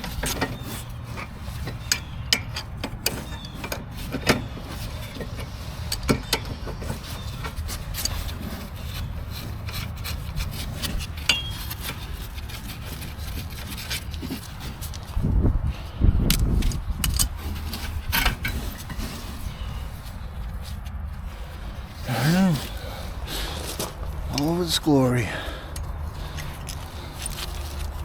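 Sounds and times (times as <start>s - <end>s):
metallic tool clicks and scraping: 0.0s - 15.2s, 16.3s - 19.4s, 25.6s - 28.0s
steady low hum: 19.4s - 28.0s.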